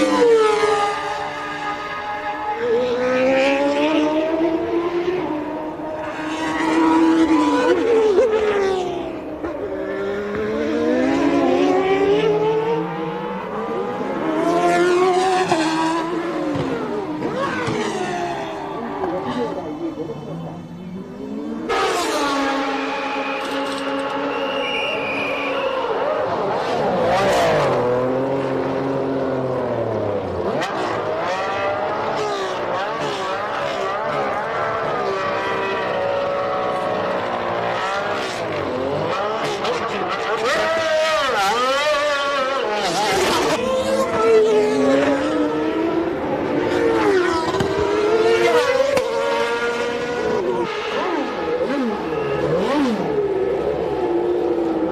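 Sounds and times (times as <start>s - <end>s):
racing car engines at high revs: 0.0s - 54.9s.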